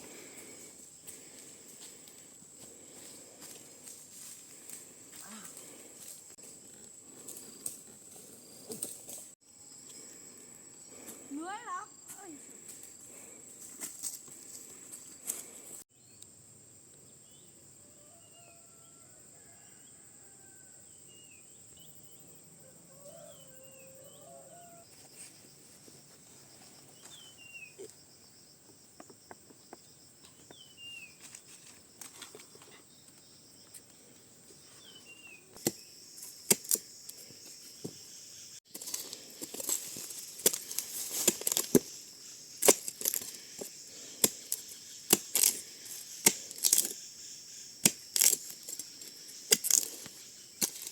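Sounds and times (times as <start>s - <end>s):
insect hum: 0.0s - 50.9s
dry twigs and leaves crackling: 0.1s - 9.4s, 12.0s - 15.8s, 35.5s - 38.0s, 38.7s - 50.9s.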